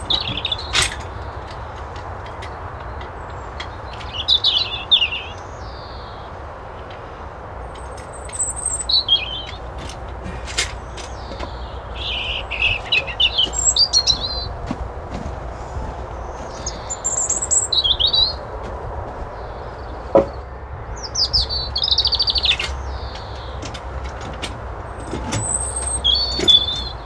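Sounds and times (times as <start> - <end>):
songbird twittering: 0.0 - 1.2, 2.8 - 6.4, 7.8 - 9.9, 10.8 - 14.6, 15.8 - 18.6, 19.3 - 23.8, 25.0 - 27.0.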